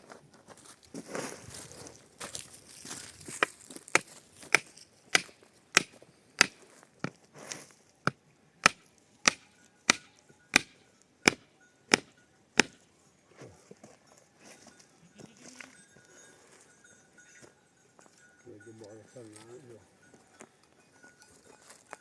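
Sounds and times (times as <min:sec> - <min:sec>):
hammer blows on wooden stake: 0:03.9 - 0:07.2, 0:08.0 - 0:12.8.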